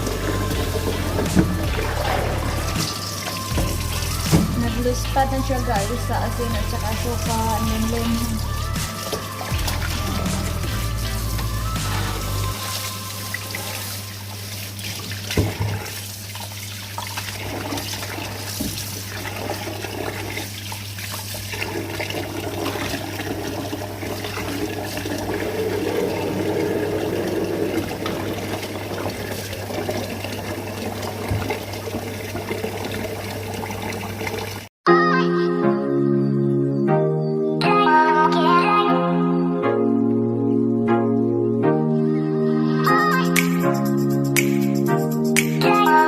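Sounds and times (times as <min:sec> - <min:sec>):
water running and splashing: 0:00.0 - 0:34.7.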